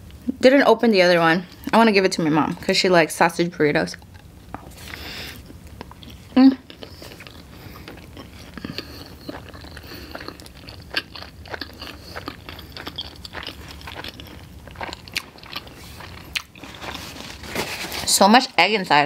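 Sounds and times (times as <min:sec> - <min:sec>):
person chewing with mouth clicks: 0:04.0 - 0:17.1.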